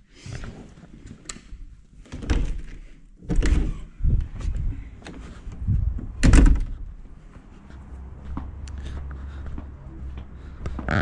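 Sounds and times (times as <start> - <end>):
door opening and shutting: 2.1 - 4.3, 6.0 - 6.8
knocks and thuds: 6.0 - 6.7.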